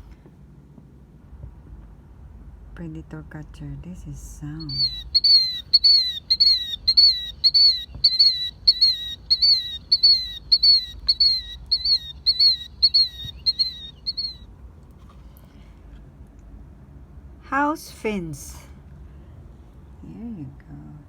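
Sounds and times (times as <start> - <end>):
bird calling shrill notes: 4.6 - 14.5.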